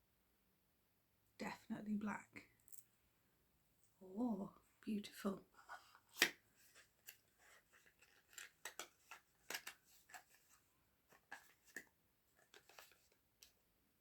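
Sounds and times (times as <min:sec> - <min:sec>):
small items clicking and rustling: 0:06.1 - 0:13.5.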